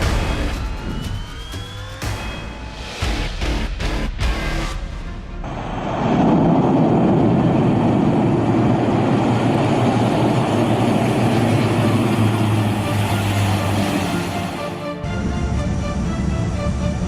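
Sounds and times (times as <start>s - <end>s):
aircraft engine humming: 5.3s - 17.0s.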